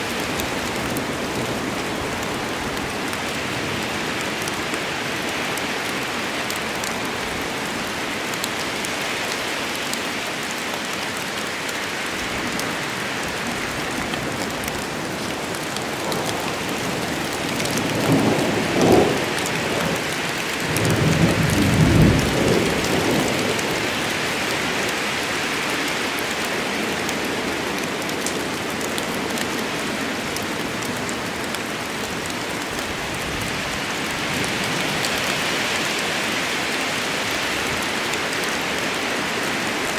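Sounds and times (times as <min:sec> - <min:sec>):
rain falling in a forest: 0:00.0 - 0:39.9
thunder rumbling: 0:16.0 - 0:24.2.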